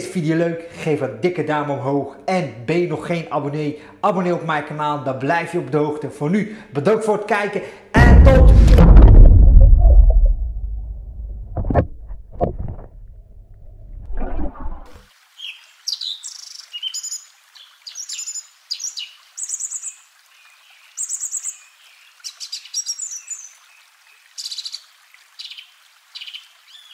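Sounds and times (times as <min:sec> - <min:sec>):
sharp hits: 0:08.0 - 0:11.9
low rumble: 0:08.0 - 0:14.8.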